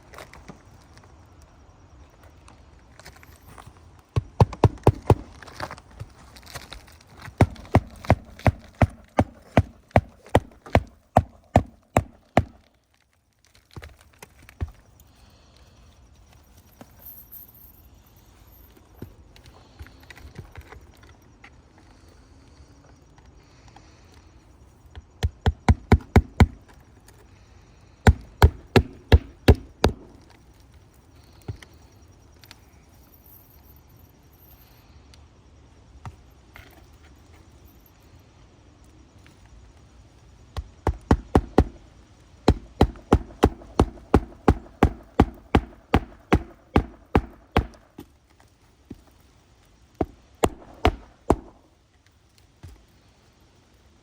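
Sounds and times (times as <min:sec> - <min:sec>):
hammer driving nails into shingles: 0:04.1 - 0:05.7, 0:07.2 - 0:12.7, 0:25.2 - 0:26.7, 0:28.0 - 0:30.3, 0:40.6 - 0:41.8, 0:42.4 - 0:48.1, 0:50.0 - 0:51.6.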